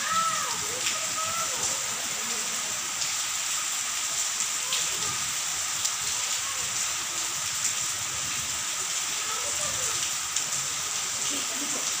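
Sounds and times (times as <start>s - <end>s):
rain drops ticking: 0.0s - 12.0s
steady rain hiss: 0.0s - 12.0s.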